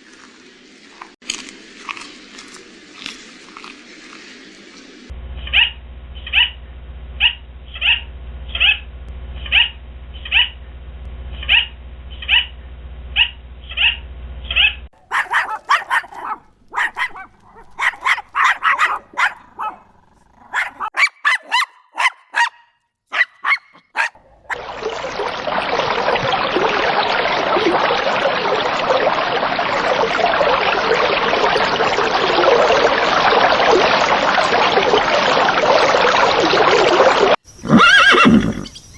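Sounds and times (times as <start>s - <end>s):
sharp animal calls: 5.4s - 6.6s, 7.2s - 10.6s, 11.4s - 12.6s, 13.2s - 24.6s, 37.4s - 38.9s
short animal calls: 7.2s - 10.6s, 11.4s - 12.6s, 13.2s - 17.2s.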